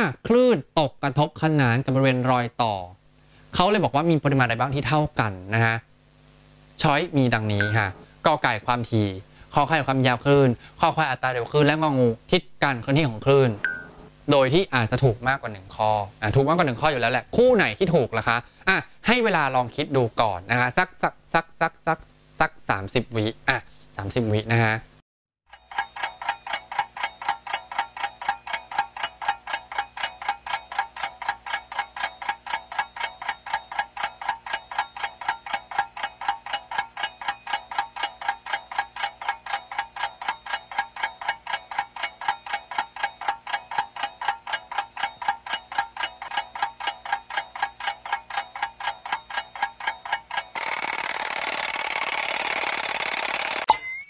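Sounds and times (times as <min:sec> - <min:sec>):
clock ticking rapidly: 0:07.3 - 0:08.0, 0:25.5 - 0:53.7.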